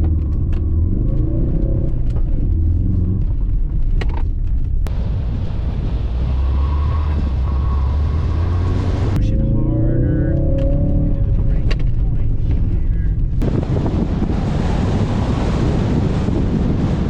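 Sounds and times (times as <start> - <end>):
car engine revving: 4.8 - 17.0.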